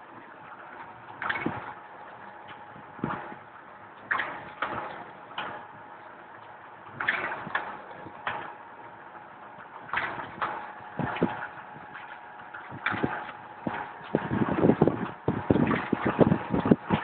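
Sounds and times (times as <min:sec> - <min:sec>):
machine hum: 0:00.0 - 0:17.0
mechanical clacks and knocks: 0:09.6 - 0:17.0.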